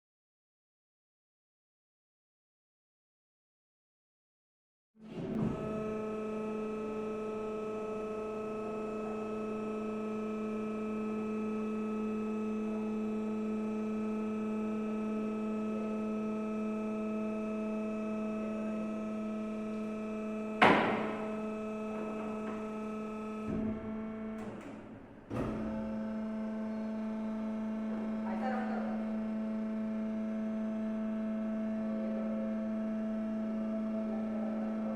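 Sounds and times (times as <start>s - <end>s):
electric motor and pump hum: 5.1s - 34.9s
sharp clunk: 20.6s - 21.4s.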